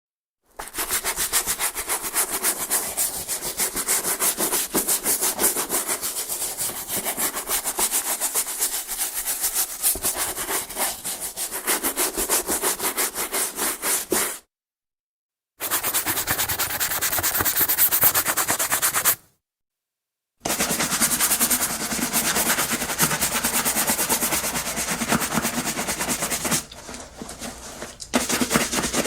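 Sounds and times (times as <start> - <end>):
brush scrubbing shoe: 0.6 - 14.4, 15.6 - 19.2, 20.5 - 29.0.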